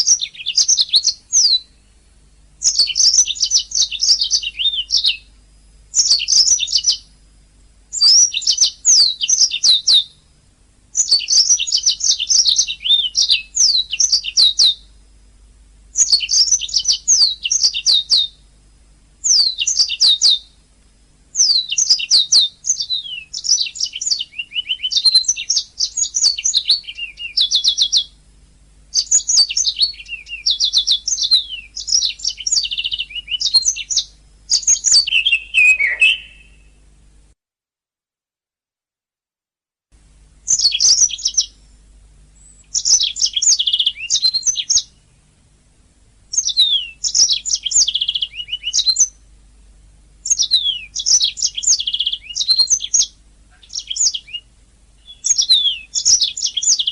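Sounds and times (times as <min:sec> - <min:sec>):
canary singing: 0:00.0 - 0:02.0, 0:02.6 - 0:07.2, 0:07.9 - 0:10.2, 0:10.9 - 0:15.0, 0:15.9 - 0:18.4, 0:19.2 - 0:20.6, 0:21.3 - 0:28.2, 0:28.9 - 0:36.8, 0:40.4 - 0:41.8, 0:42.4 - 0:45.2, 0:46.3 - 0:49.2, 0:50.2 - 0:56.9.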